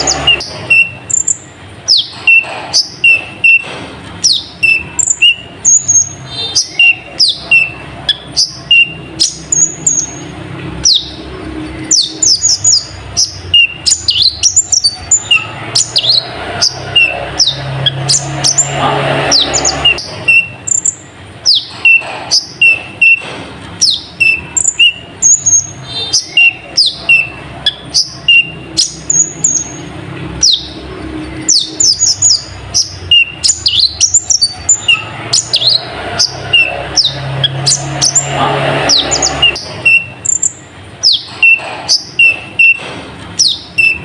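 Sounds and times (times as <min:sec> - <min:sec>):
bird singing high sharp chirps: 0:00.0 - 0:42.8, 0:43.4 - 0:44.0.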